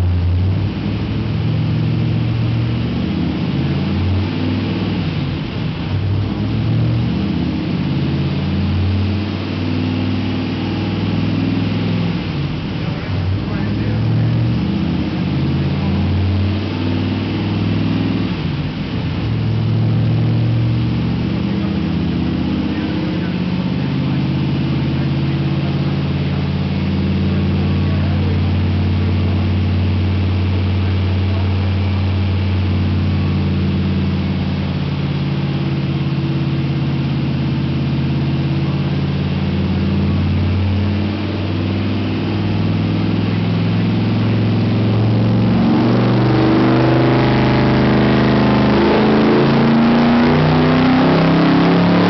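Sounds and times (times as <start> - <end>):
car engine revving on dyno: 0.0 - 52.0.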